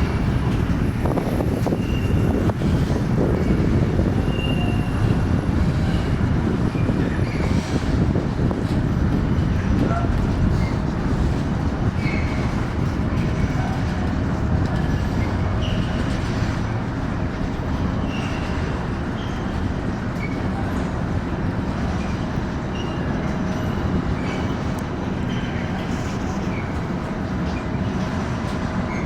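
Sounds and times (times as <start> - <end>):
train rumbling on tracks: 0.0 - 29.0
wheel squeaks: 10.5 - 14.0, 14.8 - 16.8, 18.0 - 20.8.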